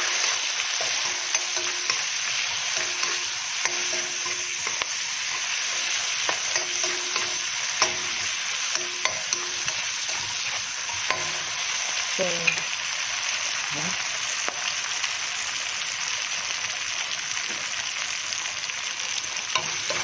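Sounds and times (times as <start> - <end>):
spatula scraping a wok: 0.0 - 12.6, 19.5 - 20.0
vegetables sizzling in oil: 0.0 - 20.0.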